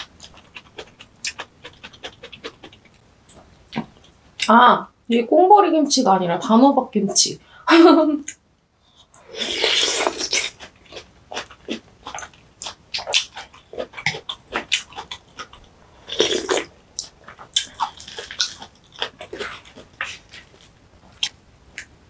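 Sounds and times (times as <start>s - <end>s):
wet chewing and mouth smacks: 0.0s - 4.2s, 9.8s - 21.9s.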